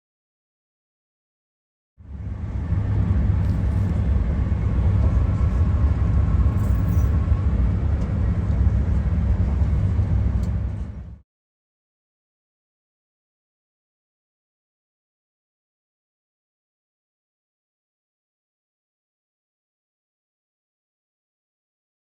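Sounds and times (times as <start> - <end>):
train rumble inside carriage: 2.0 - 11.2.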